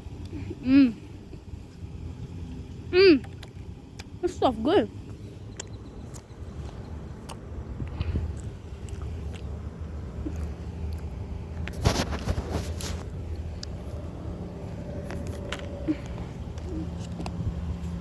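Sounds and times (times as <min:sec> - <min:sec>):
low rumble: 0:04.9 - 0:18.0
crackling rustles: 0:07.9 - 0:18.0.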